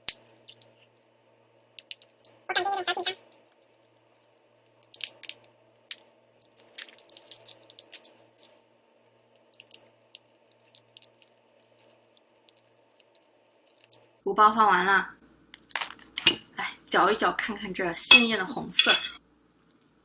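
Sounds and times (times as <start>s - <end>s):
plastic sachets crinkling and squeezed: 2.9s - 8.6s.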